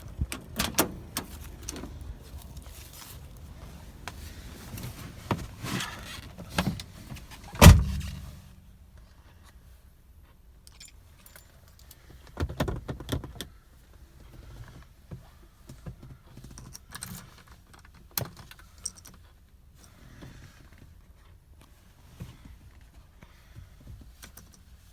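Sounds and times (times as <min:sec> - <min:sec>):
car keys jangling: 0:07.6 - 0:08.4
loud thump: 0:07.6 - 0:08.5.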